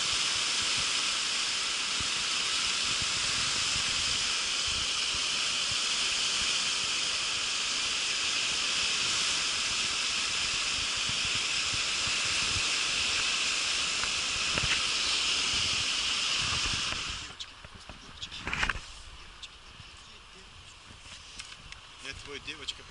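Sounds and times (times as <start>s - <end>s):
whitewater rushing: 0.0s - 17.4s.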